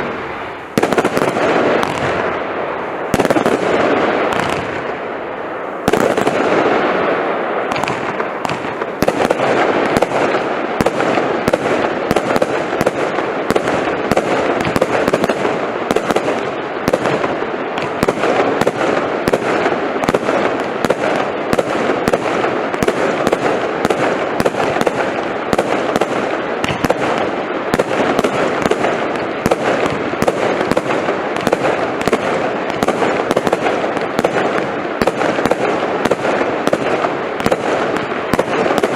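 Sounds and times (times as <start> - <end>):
firework crackling: 0.0 - 38.9.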